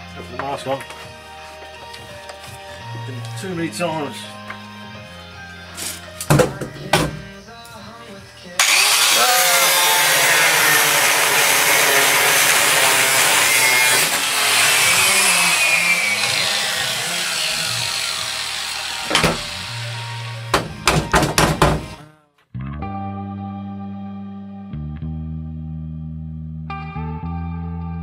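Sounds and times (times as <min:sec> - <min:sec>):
angle grinder cutting sheet steel: 0:08.6 - 0:20.6
sharp metallic knocks: 0:20.5 - 0:22.0.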